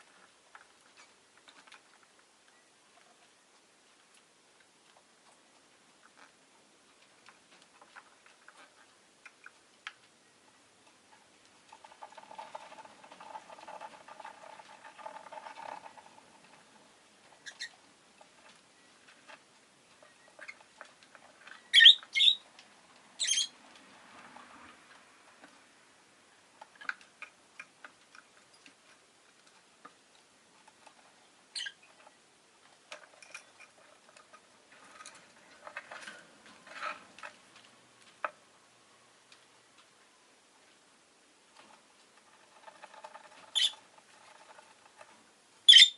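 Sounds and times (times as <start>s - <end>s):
lovebird chattering: 17.4s - 17.8s, 21.6s - 22.4s, 23.2s - 23.6s, 31.5s - 31.9s, 43.5s - 43.8s, 45.7s - 45.9s.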